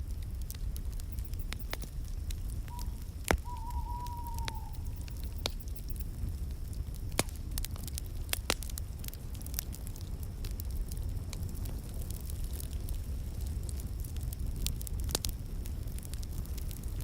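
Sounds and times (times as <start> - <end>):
wood fire crackling: 0.0 - 17.0
sharp pops: 2.7 - 3.7.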